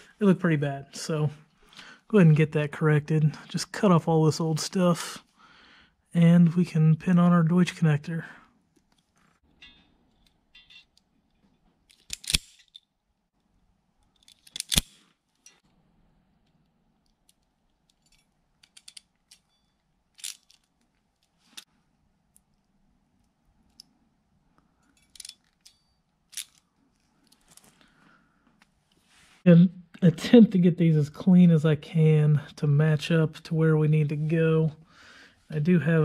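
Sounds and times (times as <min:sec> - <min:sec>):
handling clicks: 0:11.8 - 0:15.6
wire cutters snipping wires: 0:11.9 - 0:12.8, 0:14.3 - 0:15.6.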